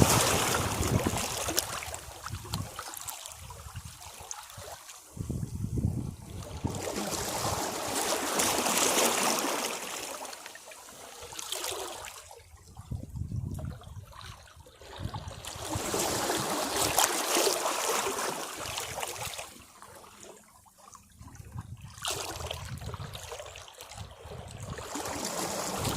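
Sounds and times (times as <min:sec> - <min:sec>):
sea waves washing against rocks: 0:00.0 - 0:03.1, 0:04.5 - 0:12.1, 0:15.5 - 0:19.6, 0:24.8 - 0:25.9
trickling water: 0:00.0 - 0:25.9.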